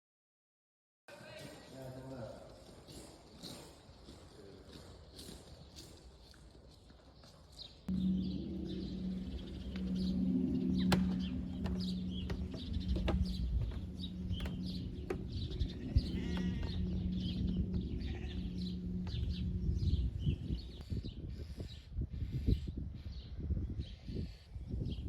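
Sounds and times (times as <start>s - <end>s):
small birds chirping: 2.9s - 25.0s
steady low hum: 7.9s - 20.8s
animal bleating: 14.4s - 19.6s.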